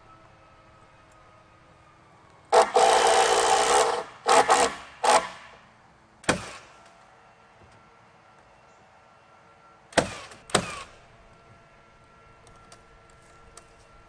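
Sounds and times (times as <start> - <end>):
power drill running: 2.5 - 5.6, 10.1 - 11.2.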